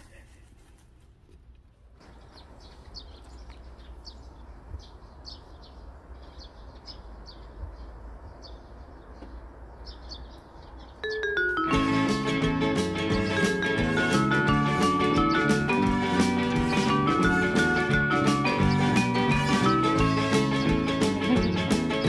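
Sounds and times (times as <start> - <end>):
small birds chirping: 1.8 - 22.0
plucked guitar music: 11.1 - 22.0.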